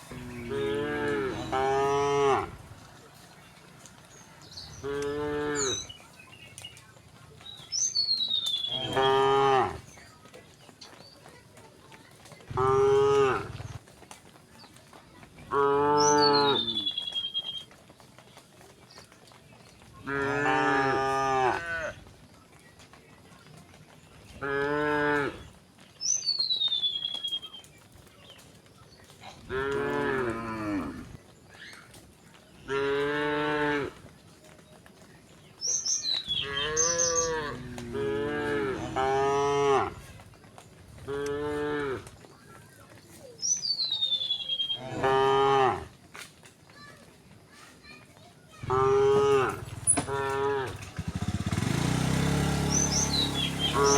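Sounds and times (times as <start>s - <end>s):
cattle mooing: 0.0s - 2.6s, 4.8s - 5.9s, 8.7s - 9.8s, 12.5s - 13.8s, 20.0s - 22.0s, 29.5s - 31.1s, 36.4s - 40.0s, 44.8s - 45.9s, 48.7s - 50.9s, 52.8s - 53.9s.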